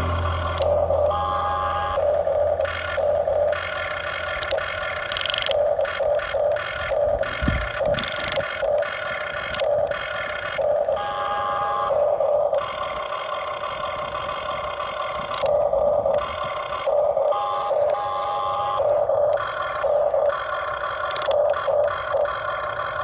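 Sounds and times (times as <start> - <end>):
small electric motors whining: 0.0 - 23.0
sharp clicks: 2.0 - 11.0, 15.2 - 16.2, 18.8 - 22.4.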